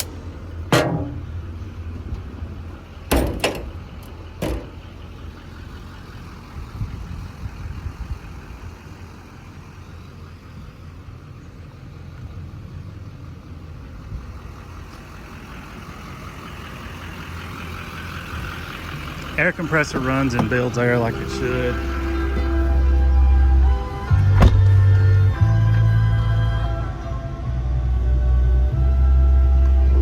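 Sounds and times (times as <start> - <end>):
diesel truck engine idling: 0.0 - 30.0
sharp knocks: 0.7 - 1.4.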